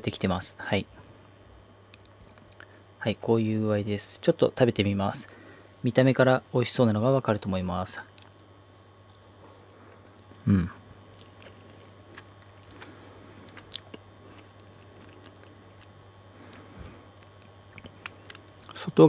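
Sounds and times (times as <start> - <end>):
person chewing: 1.9 - 2.7, 8.1 - 18.8
person humming: 10.4 - 10.8.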